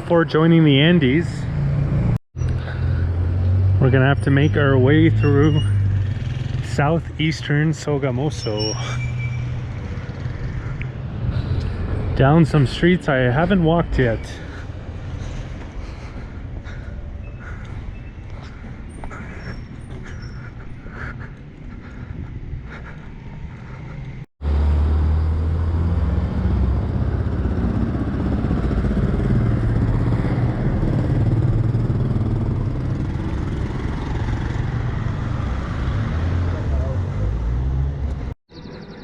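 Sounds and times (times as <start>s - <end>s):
street ambience: 0.0s - 39.0s.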